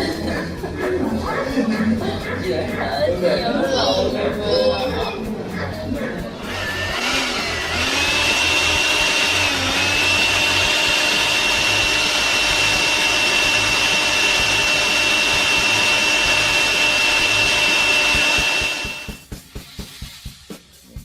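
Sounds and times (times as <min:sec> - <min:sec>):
electric motor whining: 0:06.4 - 0:19.2.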